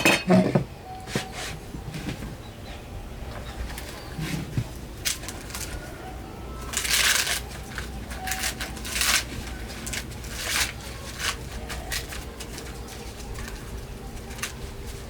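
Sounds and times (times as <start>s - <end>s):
dry leaves rustling and crackling: 3.4s - 15.0s.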